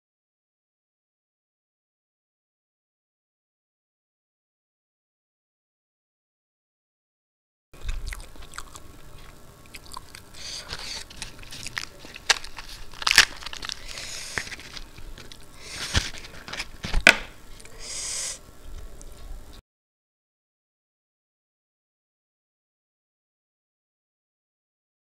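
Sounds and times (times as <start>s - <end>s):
chewing and mouth clicks: 7.8s - 14.5s
crisp fried bread tearing: 10.0s - 16.8s.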